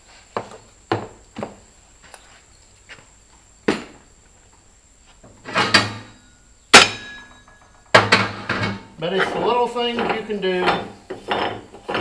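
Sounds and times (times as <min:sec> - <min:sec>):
metal knocks and clanks: 0:05.4 - 0:06.2, 0:06.8 - 0:12.0.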